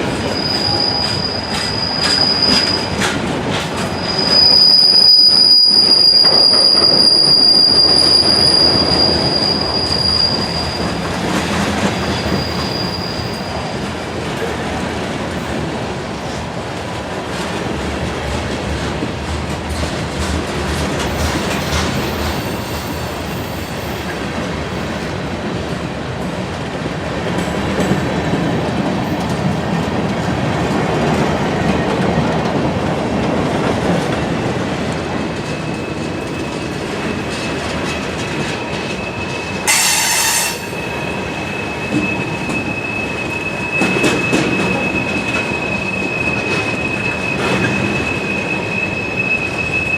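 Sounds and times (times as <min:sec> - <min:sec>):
freight train rumbling past: 0:00.0 - 0:49.9
high wheel squeal: 0:00.1 - 0:03.2, 0:03.8 - 0:13.9, 0:21.1 - 0:24.2, 0:35.4 - 0:49.9.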